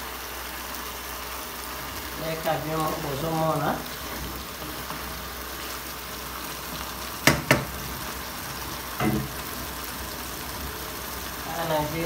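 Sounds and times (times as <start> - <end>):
fish sizzling in a pot: 0.0 - 12.0
wooden spoon knocking a pot: 7.2 - 7.8.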